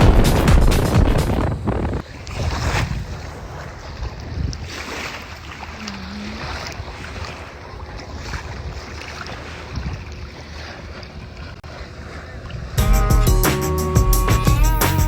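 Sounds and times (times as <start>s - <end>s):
low rumble: 0.0s - 2.0s
wind on microphone: 0.0s - 5.2s, 5.8s - 12.8s.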